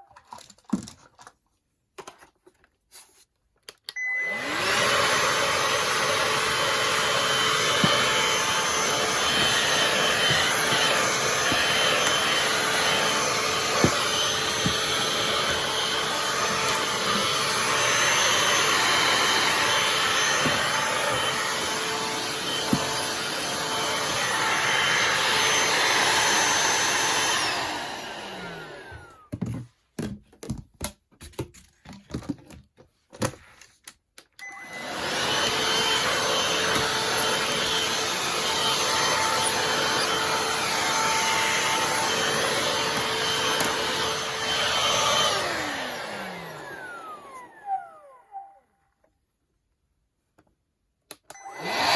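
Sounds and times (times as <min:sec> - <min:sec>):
handheld vacuum cleaner whine: 0:03.9 - 0:29.6, 0:34.4 - 0:48.8, 0:51.1 - 0:51.9.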